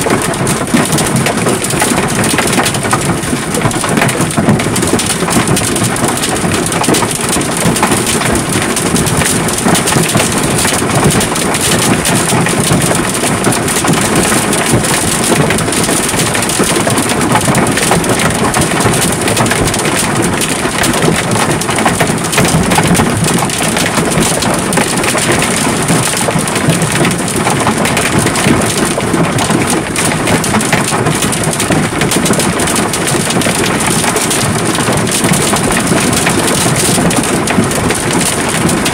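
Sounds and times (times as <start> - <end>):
hail and rain pelting down: 0.0 - 38.9.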